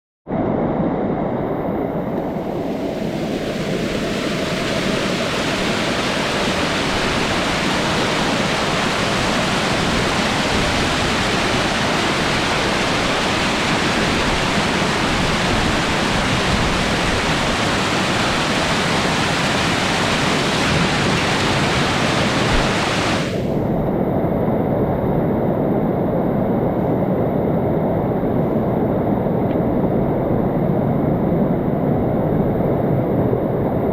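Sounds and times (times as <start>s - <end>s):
water rushing down stone steps: 3.3s - 23.4s.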